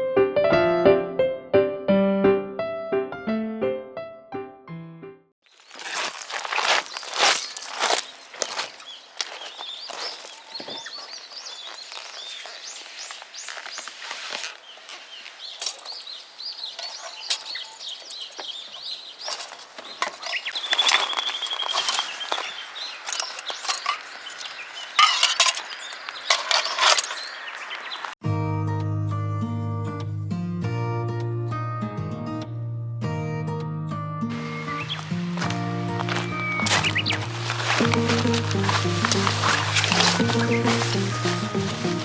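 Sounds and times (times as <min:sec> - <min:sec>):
wild birds chirping: 0:05.5 - 0:28.2, 0:34.3 - 0:42.0
bird trill: 0:05.6 - 0:28.2, 0:34.3 - 0:42.0
clicks and rustles: 0:16.7 - 0:28.2, 0:34.3 - 0:42.0.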